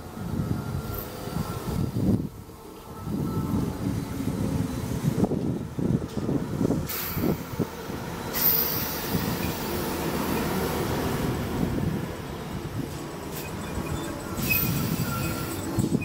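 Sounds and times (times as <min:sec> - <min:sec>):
train wheels rumbling: 0:00.0 - 0:16.0
train hiss: 0:06.8 - 0:11.8, 0:13.3 - 0:15.9.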